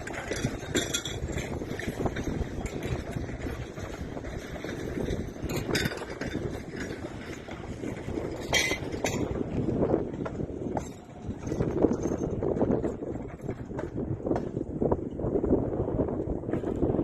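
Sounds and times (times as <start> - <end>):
train rumbling: 0.0 - 15.1
sharp metallic clanks: 8.4 - 9.4.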